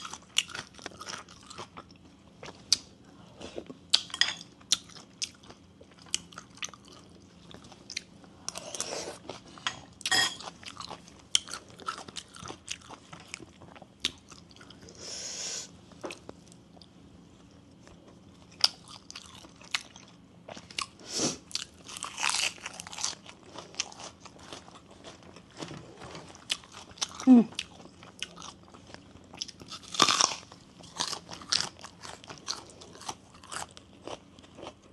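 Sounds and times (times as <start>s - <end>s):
chewing and biting: 26.3s - 34.9s.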